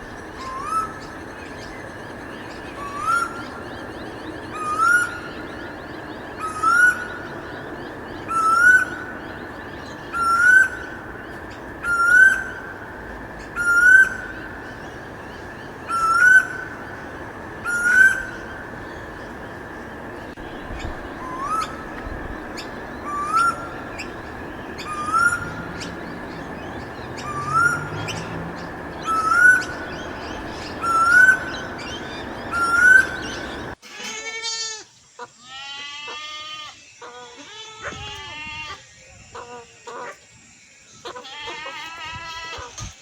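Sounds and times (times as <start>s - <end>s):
steady hiss: 0.0s - 33.8s
bird short rising call: 20.3s - 33.8s.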